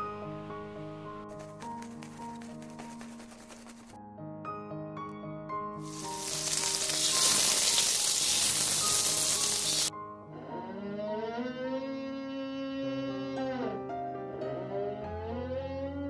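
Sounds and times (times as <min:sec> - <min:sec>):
background music: 0:00.0 - 0:16.0
loud hiss: 0:05.8 - 0:09.9.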